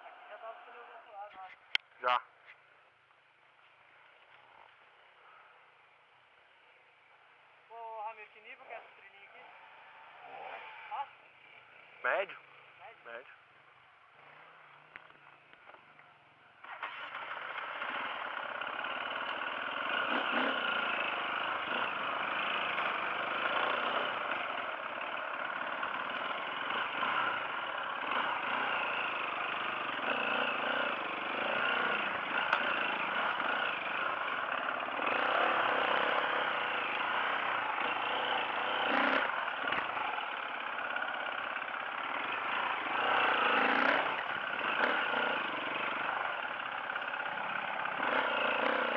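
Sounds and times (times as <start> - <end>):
off-road motorcycle engine: 0.0 - 48.9.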